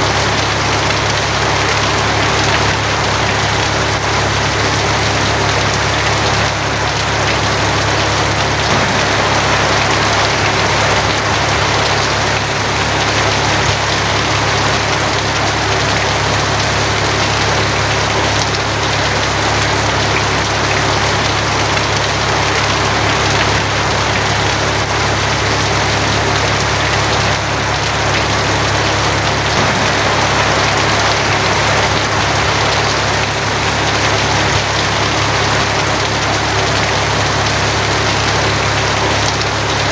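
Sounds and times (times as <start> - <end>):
rain on a tin roof: 0.0 - 39.9
low rumble: 8.7 - 13.0, 29.6 - 34.3.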